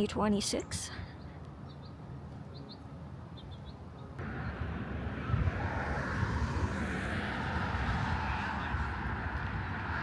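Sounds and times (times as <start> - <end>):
bird chirps: 1.1 - 4.1
vehicle passing on road: 4.0 - 10.0.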